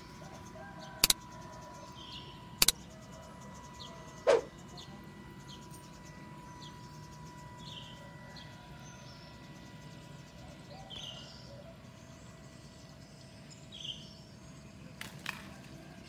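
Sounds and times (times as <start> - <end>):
birds chirping: 0.0 - 16.0
faint high hum: 0.0 - 16.0
bird call sliding downward: 4.3 - 4.5.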